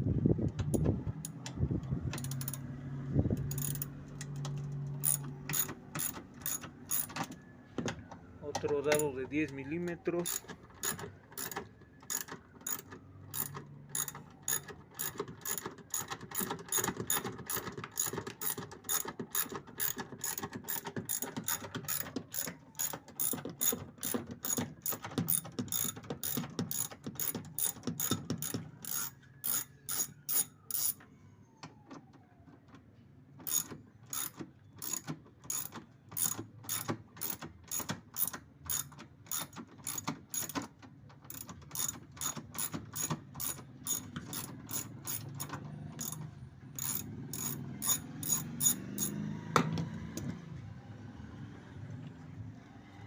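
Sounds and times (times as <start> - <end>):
ratchet wrench clicking: 2.2 - 2.6, 3.4 - 3.9, 5.0 - 7.1, 10.2 - 31.0, 33.5 - 40.6, 41.3 - 46.2, 46.8 - 49.2.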